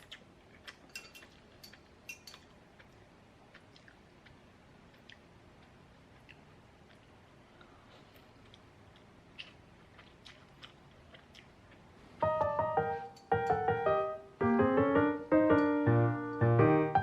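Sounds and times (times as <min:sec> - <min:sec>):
piano music: 0:12.2 - 0:17.0.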